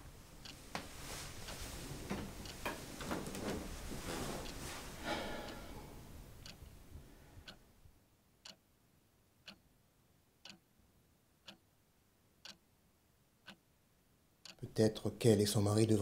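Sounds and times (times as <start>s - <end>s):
clock ticking faintly: 0.0s - 8.8s, 9.4s - 9.7s, 10.4s - 10.8s, 11.4s - 11.8s, 12.4s - 13.8s, 14.4s - 16.0s
rustling of movement: 0.1s - 6.4s.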